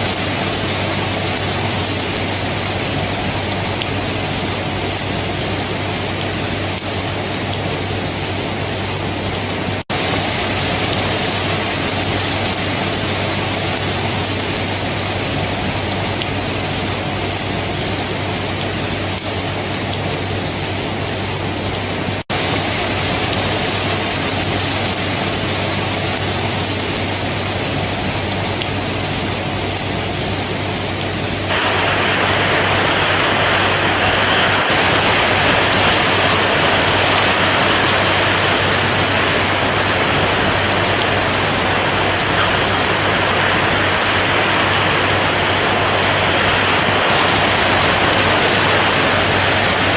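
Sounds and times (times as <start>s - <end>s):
heavy rain hiss: 0.0s - 49.9s.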